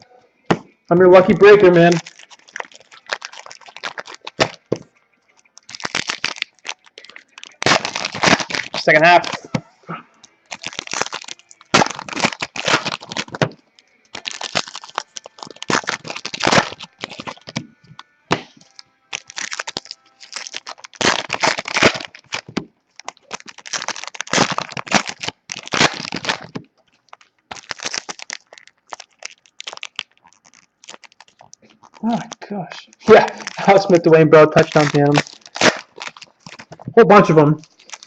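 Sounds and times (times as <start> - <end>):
plastic wrapper crinkling: 1.2 - 38.0
cards being handled: 30.5 - 38.0.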